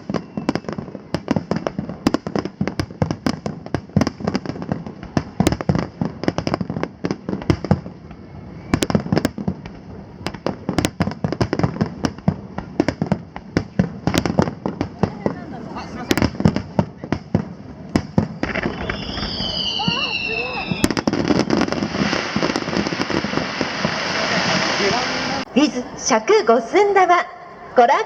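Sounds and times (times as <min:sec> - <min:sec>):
firework shells bursting: 0:08.7 - 0:25.5.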